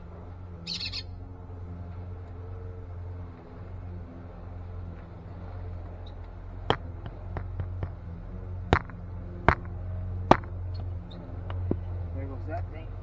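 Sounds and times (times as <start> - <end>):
steady low hum: 0.0 - 13.0
hand tool chopping tree root: 8.7 - 10.6.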